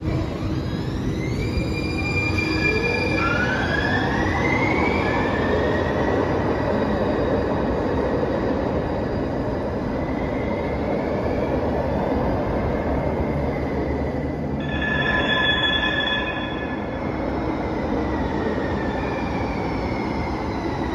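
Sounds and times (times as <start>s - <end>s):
high wheel squeal: 13.8s - 19.1s.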